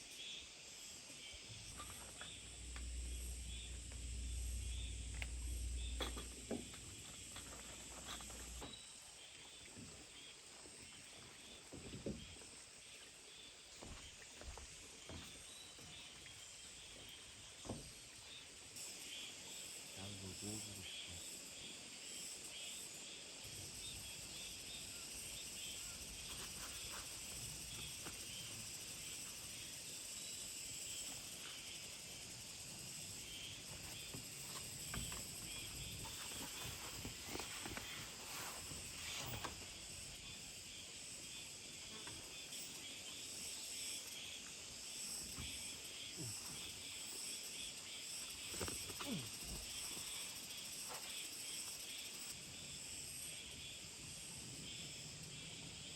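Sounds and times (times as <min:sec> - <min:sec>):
insects chorus: 0:00.0 - 0:55.9
faint knocks and rustles: 0:01.5 - 0:13.0, 0:13.7 - 0:16.3, 0:33.4 - 0:40.2.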